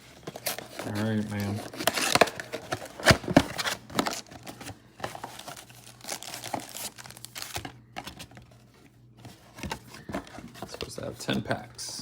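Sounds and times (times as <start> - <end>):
packaging crinkling and tearing: 0.1 - 8.5.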